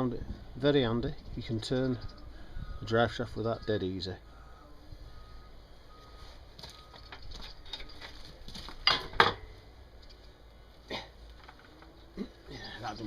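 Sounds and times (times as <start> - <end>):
hand tools clinking on metal: 6.7 - 9.5.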